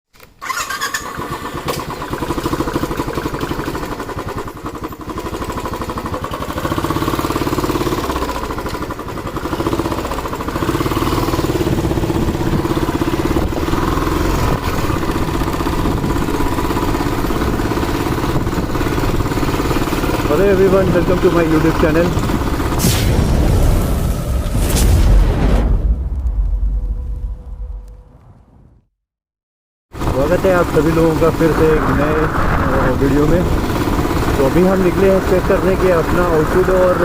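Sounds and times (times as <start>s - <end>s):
motorcycle engine pulsing: 0.4s - 22.8s, 30.0s - 37.0s.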